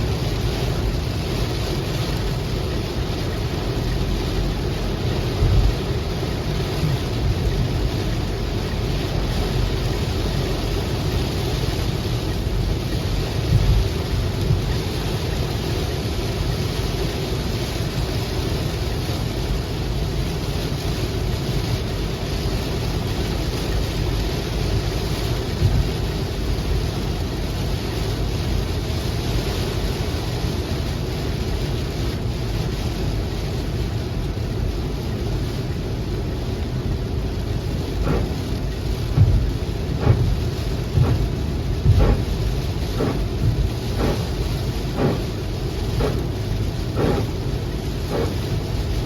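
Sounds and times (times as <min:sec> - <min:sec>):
heavy rain falling: 0:00.0 - 0:49.0
deep rumble: 0:34.4 - 0:49.0.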